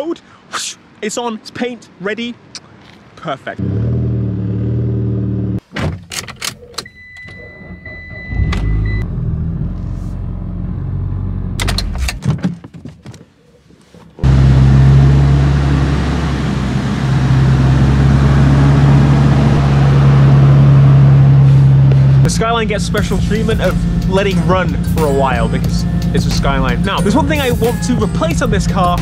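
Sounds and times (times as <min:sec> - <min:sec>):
steady electronic beep: 0:06.9 - 0:09.1
car engine idling loudly: 0:14.2 - 0:29.0.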